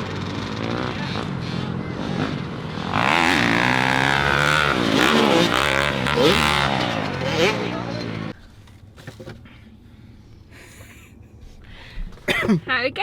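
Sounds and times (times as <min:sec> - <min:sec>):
dirt bike engines revving: 0:00.0 - 0:08.4
dirt bike passing by: 0:00.0 - 0:08.4.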